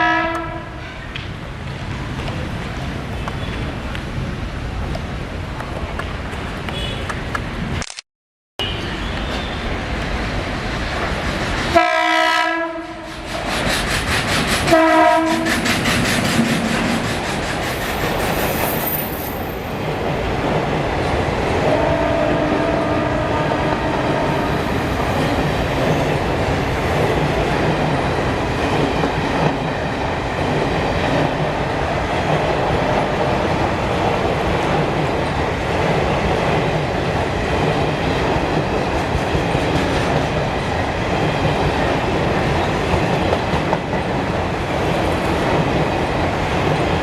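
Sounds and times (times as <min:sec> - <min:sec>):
locomotive horn blasts: 0:00.0 - 0:01.0, 0:11.7 - 0:13.1, 0:14.7 - 0:15.5, 0:21.7 - 0:24.5
train rumble: 0:08.9 - 0:47.0.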